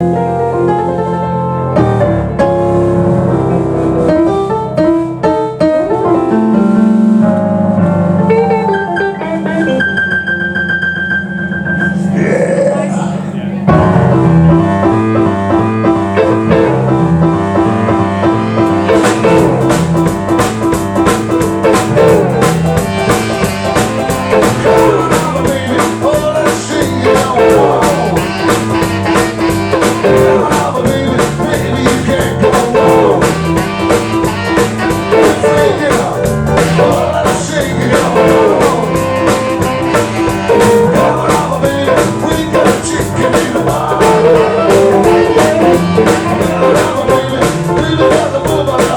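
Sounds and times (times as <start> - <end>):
live blues-rock band: 0.0 - 10.4, 13.6 - 48.9
drum kit beat: 13.7 - 48.9.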